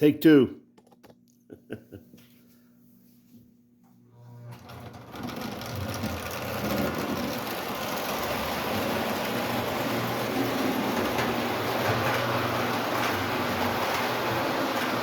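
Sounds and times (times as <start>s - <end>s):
low electric hum: 0.0s - 14.0s
toy train running on track: 5.1s - 15.0s.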